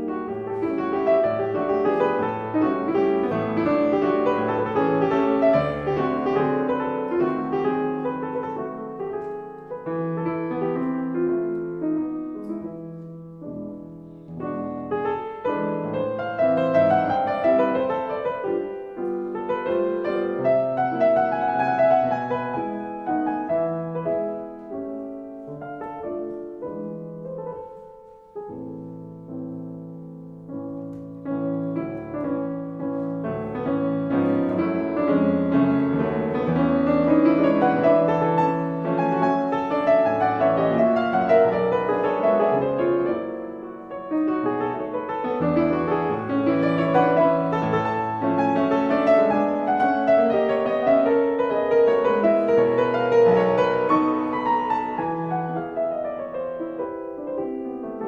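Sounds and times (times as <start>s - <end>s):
gentle solo piano music: 0.0s - 58.0s.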